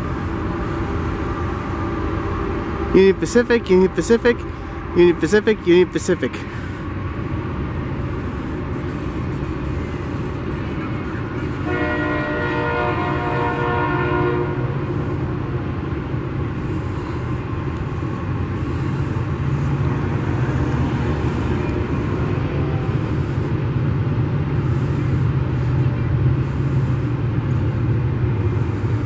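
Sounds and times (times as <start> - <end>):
locomotive horn: 0.0 - 6.0, 10.6 - 16.1
train rumbling past: 0.0 - 29.0.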